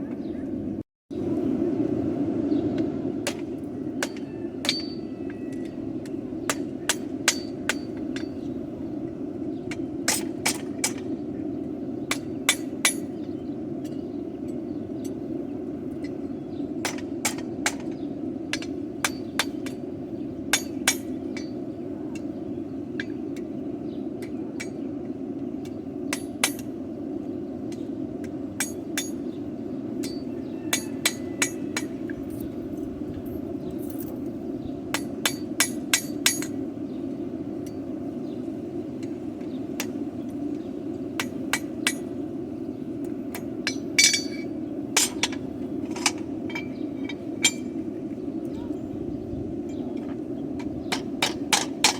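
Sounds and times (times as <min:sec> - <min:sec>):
hammer striking metal on anvil: 0:03.3 - 0:05.6, 0:06.5 - 0:08.4, 0:12.1 - 0:13.1, 0:18.5 - 0:19.8, 0:20.5 - 0:21.6, 0:26.1 - 0:26.7, 0:28.6 - 0:29.2, 0:30.0 - 0:32.1, 0:35.0 - 0:36.6, 0:41.2 - 0:42.1, 0:43.3 - 0:47.8, 0:50.9 - 0:51.9.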